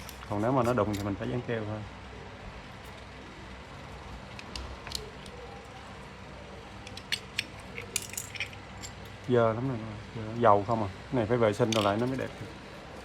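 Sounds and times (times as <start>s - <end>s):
low background hum: 0.0s - 13.0s
small parts clicking: 6.8s - 9.3s, 11.6s - 12.4s.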